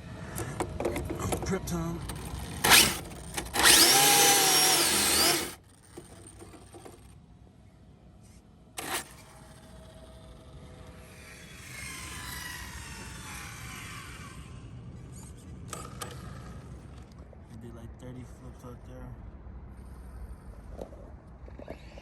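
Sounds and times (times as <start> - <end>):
electric motor whining: 2.0 - 7.1, 8.8 - 15.1.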